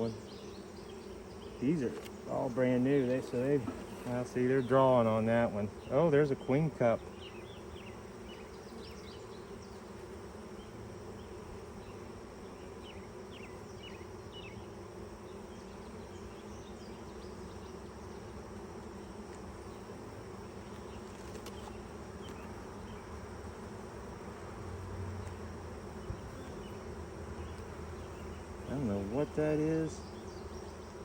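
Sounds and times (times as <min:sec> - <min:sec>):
honeybees buzzing: 0:00.0 - 0:31.0.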